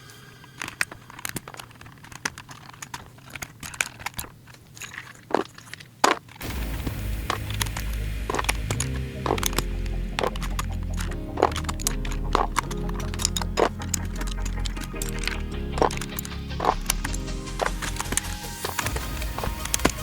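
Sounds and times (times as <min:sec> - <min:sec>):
plastic keyboard parts clicking: 0:00.4 - 0:20.0
background music with steady beat: 0:06.4 - 0:20.0.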